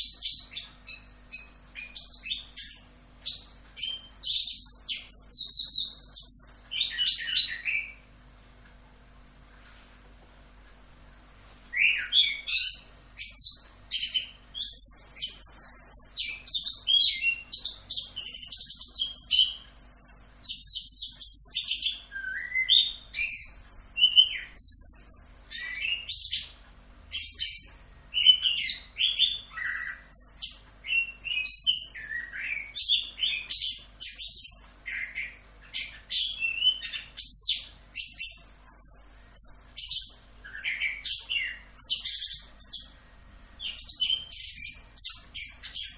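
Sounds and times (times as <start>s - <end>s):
thrush singing whistled phrases: 11.7s - 26.4s, 27.1s - 39.1s.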